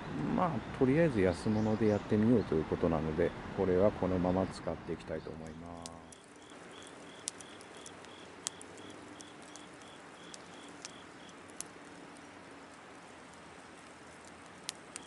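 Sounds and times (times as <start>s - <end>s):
wood fire crackling: 5.0s - 15.0s
insect chirping: 5.7s - 15.0s.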